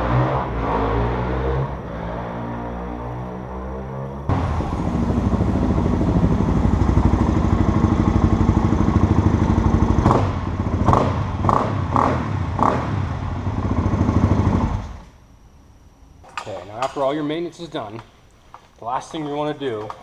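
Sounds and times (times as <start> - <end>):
single-cylinder engine running: 4.3 - 15.1.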